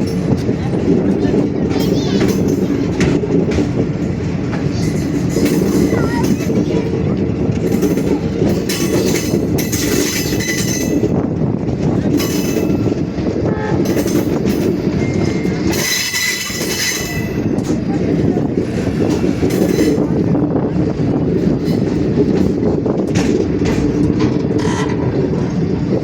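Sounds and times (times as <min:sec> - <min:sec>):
train wheels rumbling on rails: 0:00.0 - 0:26.0
metal wheel squeals: 0:24.5 - 0:25.6.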